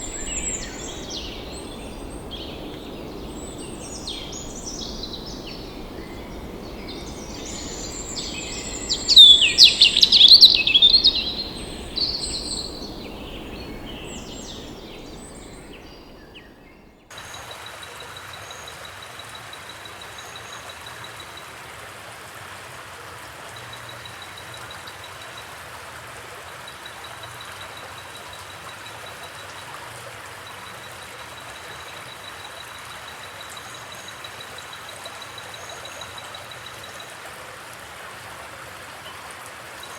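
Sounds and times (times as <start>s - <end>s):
birds chirping and singing: 0.0s - 16.9s
running water rushing: 0.0s - 19.0s.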